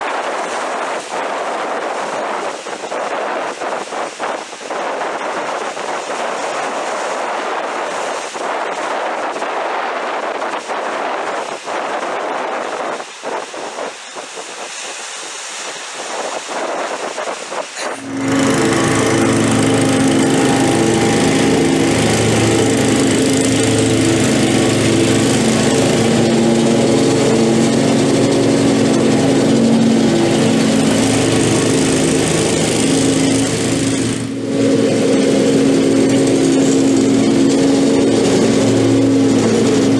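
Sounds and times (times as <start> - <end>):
rushing wind-like noise: 0.0 - 39.9
lawn mower engine running: 17.8 - 39.9.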